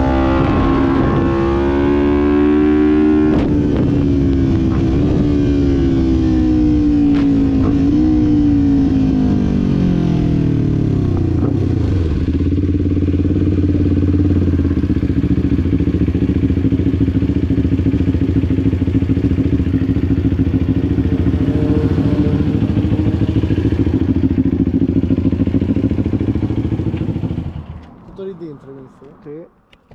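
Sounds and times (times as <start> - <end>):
motorcycle engine idling: 9.6 - 27.9.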